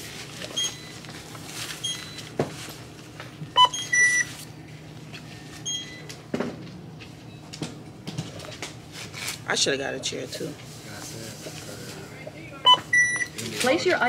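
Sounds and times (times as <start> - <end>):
scanner beeps: 0.5 - 1.0, 1.8 - 2.2, 3.6 - 4.3, 5.6 - 6.1, 12.6 - 13.4.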